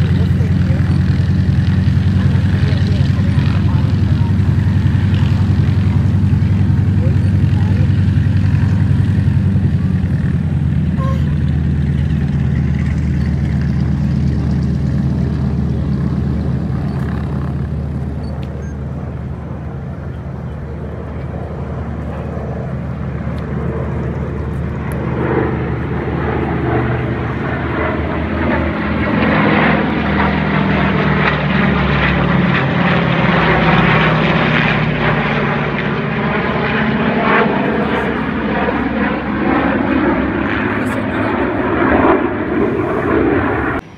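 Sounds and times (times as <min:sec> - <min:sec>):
propeller plane engine droning: 0:00.0 - 0:43.9.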